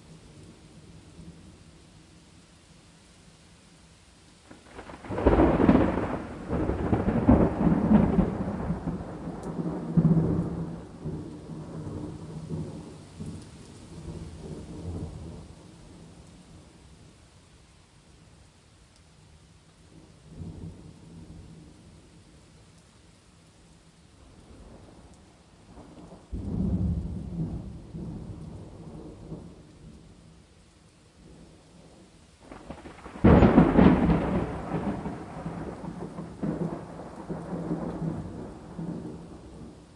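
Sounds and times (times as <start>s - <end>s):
rain: 0.0s - 39.9s
thunder rumbling: 4.5s - 16.0s, 25.7s - 30.1s, 32.4s - 39.9s.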